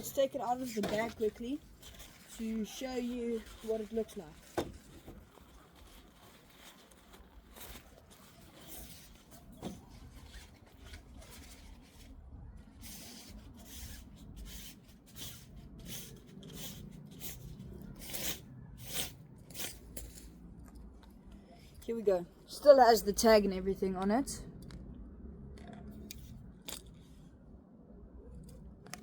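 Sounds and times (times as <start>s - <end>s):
bag rustling: 0.0s - 12.2s.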